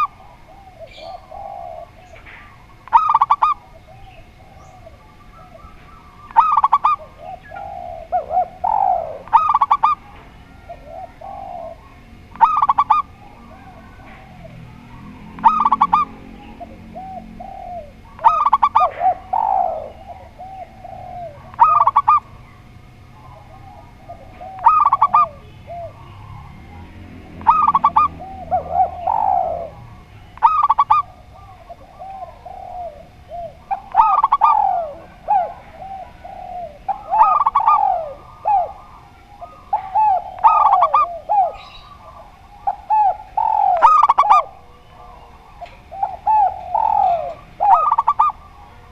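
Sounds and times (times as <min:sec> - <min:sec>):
low gliding dove coos: 0:00.0 - 0:48.9
short bright dove coos: 0:27.4 - 0:48.4.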